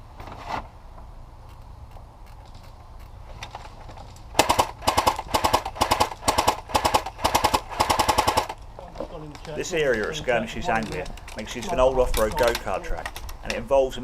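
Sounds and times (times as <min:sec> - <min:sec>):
airsoft gun firing bursts: 0:04.3 - 0:08.6.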